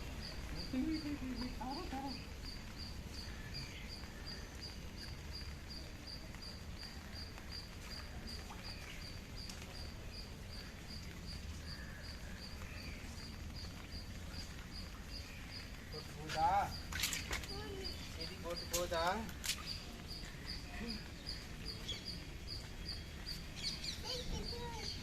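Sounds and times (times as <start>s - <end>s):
background noise: 0.0s - 25.0s
insect chirping: 0.0s - 25.0s
faint bird calls: 10.6s - 13.4s.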